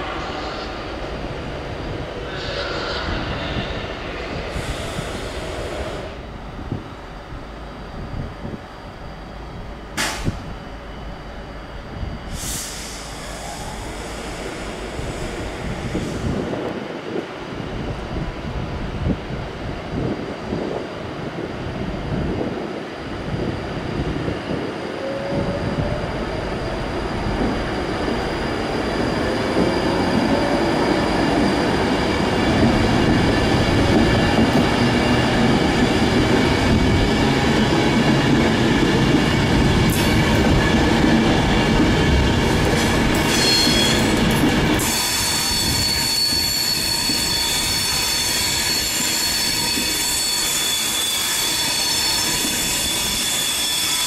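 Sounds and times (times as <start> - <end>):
train wheels rumbling on rails: 0.0 - 54.0
high-pitched wheel squeal: 43.2 - 44.1, 44.8 - 54.0.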